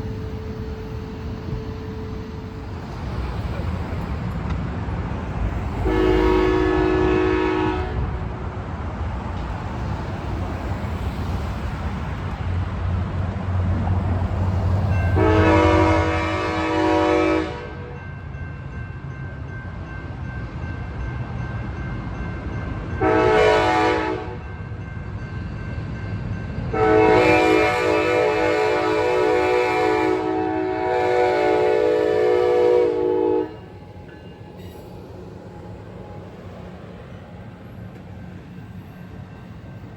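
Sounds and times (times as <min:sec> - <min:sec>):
diesel train rumble: 0:00.0 - 0:39.9
locomotive air horn blasts: 0:05.8 - 0:08.4, 0:15.1 - 0:18.0, 0:23.0 - 0:24.4, 0:26.7 - 0:33.8.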